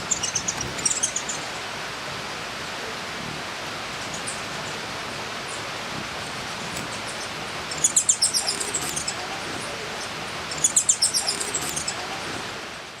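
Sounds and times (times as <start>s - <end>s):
bird chirping: 0.0s - 1.5s, 6.9s - 9.3s, 10.0s - 12.1s
rushing hiss of outdoor ambience: 0.0s - 13.0s.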